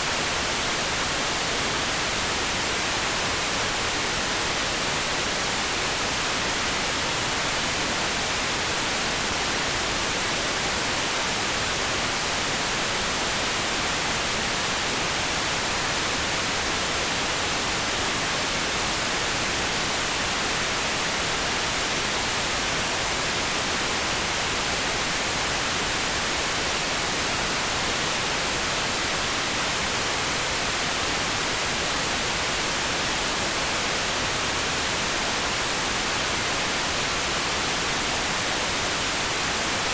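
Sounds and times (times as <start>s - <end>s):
steady pink noise hiss: 0.0s - 39.9s.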